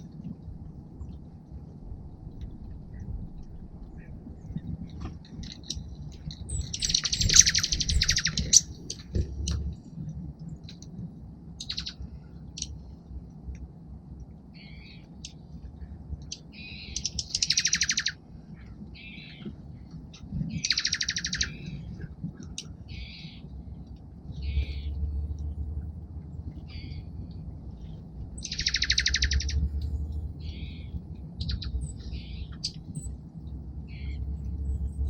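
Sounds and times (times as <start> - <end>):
short bird chips: 5.4 - 9.7
songbird chattering trills: 5.4 - 9.7, 11.6 - 12.7, 16.3 - 18.2, 20.6 - 23.5, 24.4 - 25.0, 28.3 - 33.2, 33.8 - 35.0.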